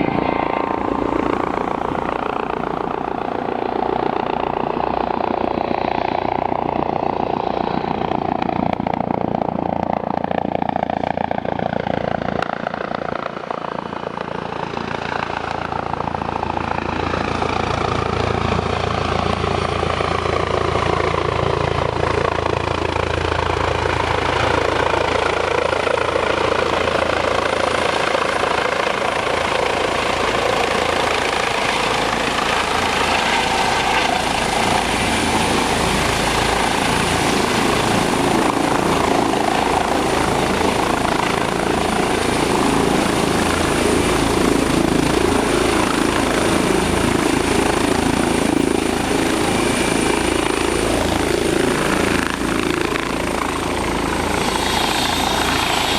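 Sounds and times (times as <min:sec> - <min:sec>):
helicopter rotor and turbine: 0:00.0 - 0:55.9
high whine: 0:34.0 - 0:55.9.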